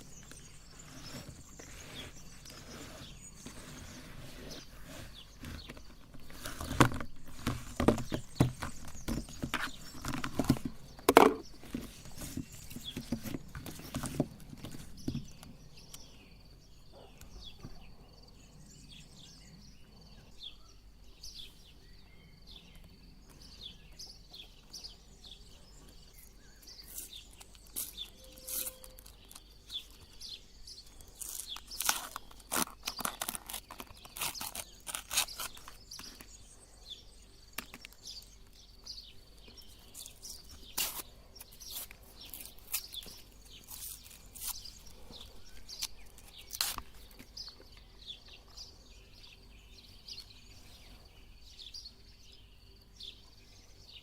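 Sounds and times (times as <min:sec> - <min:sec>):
ice cream cones crunching: 0:25.9 - 0:36.4, 0:37.5 - 0:47.9.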